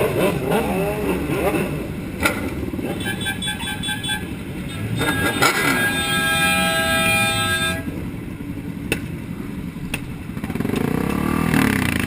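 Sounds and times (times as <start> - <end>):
engine revving: 0.0 - 3.7, 4.6 - 7.9, 10.4 - 12.0
traffic noise: 0.0 - 12.0
vehicle horn: 2.8 - 8.0.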